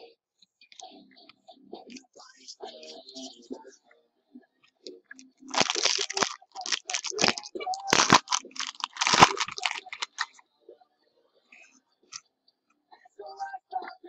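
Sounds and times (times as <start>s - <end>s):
plastic packaging crinkling: 5.5s - 10.4s.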